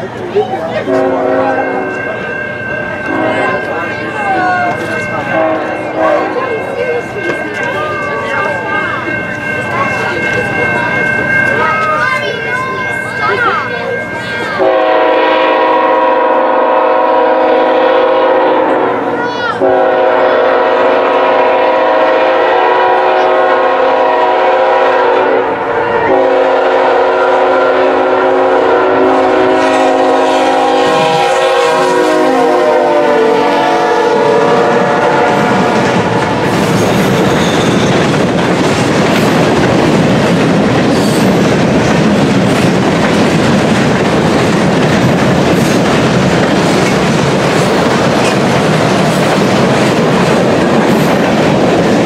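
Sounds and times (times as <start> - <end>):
locomotive horn blowing: 0.9 - 1.9, 3.1 - 3.6, 5.3 - 6.3, 14.6 - 36.5
wheels clicking over rail joints: 35.7 - 52.0.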